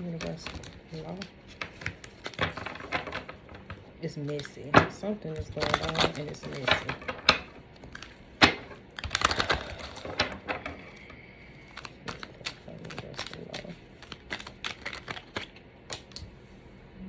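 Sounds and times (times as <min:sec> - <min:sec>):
cards being shuffled: 0:00.0 - 0:16.4.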